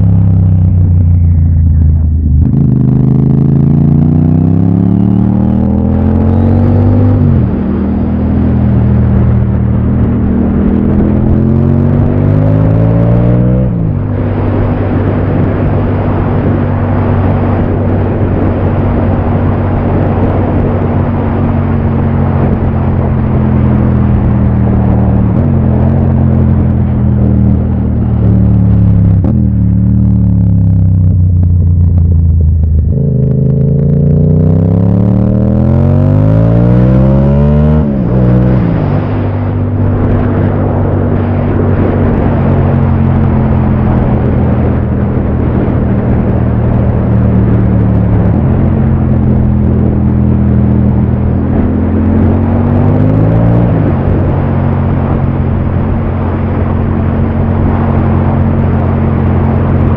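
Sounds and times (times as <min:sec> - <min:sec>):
motorcycle engine revving: 0:00.0 - 0:59.9
wind and road rush: 0:00.0 - 0:59.9.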